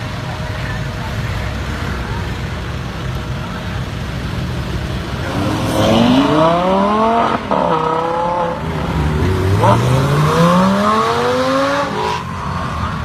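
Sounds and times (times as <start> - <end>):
car engine accelerating: 3.9 - 13.0.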